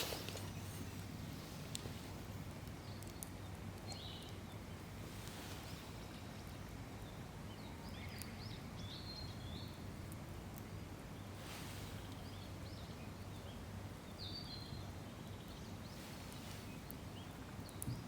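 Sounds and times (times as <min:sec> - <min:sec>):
faint clicks: 0:01.7 - 0:01.9, 0:02.6 - 0:04.4, 0:16.3 - 0:18.0
bird chirps: 0:02.8 - 0:04.8.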